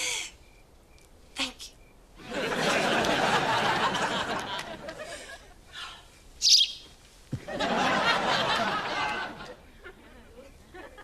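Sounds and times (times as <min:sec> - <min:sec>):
audience laughing: 0:02.2 - 0:05.6, 0:07.4 - 0:11.0
shrill bird chirp: 0:06.0 - 0:06.9.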